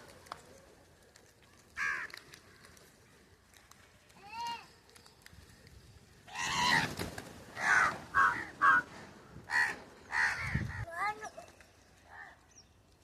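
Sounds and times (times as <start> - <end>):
birds giving harsh calls: 6.2 - 12.8.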